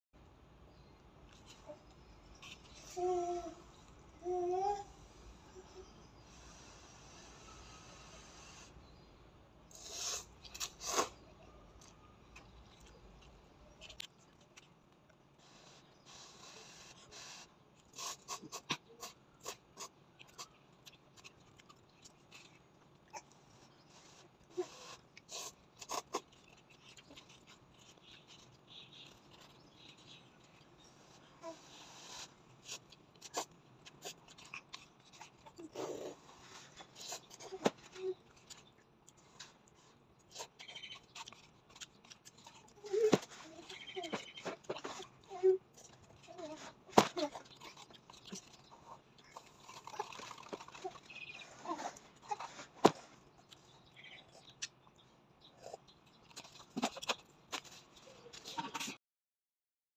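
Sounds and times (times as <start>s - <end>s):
wet mouth clicks from chewing: 47.4s - 51.4s, 53.3s - 58.5s.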